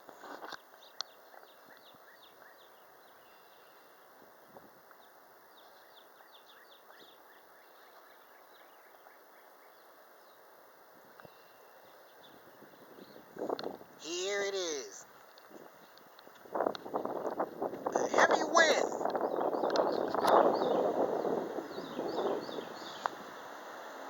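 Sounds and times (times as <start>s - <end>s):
faint bird chirping: 0.6s - 17.5s, 18.2s - 23.6s
low steady hiss: 20.1s - 24.0s.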